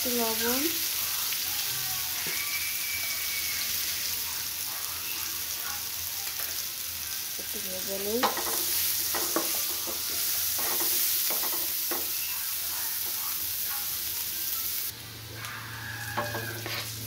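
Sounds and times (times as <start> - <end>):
onion sizzling in hot oil: 0.0 - 17.0
wooden spatula scraping pan: 16.2 - 17.0.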